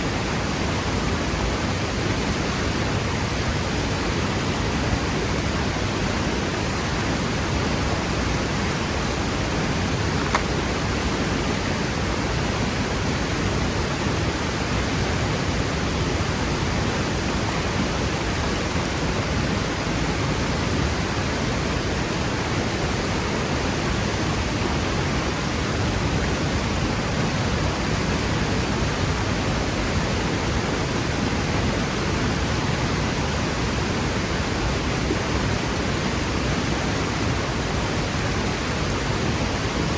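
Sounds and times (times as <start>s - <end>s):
waterfall roar: 0.0s - 39.9s
faint click: 10.1s - 10.7s.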